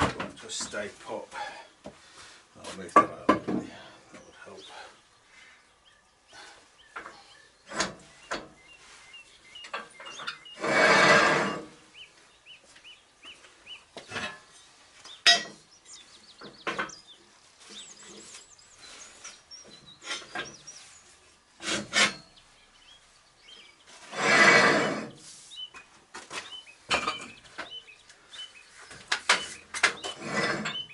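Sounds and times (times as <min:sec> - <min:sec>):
loud scraping rub: 0:10.4 - 0:11.9, 0:21.6 - 0:22.4, 0:23.9 - 0:25.6, 0:29.4 - 0:30.9.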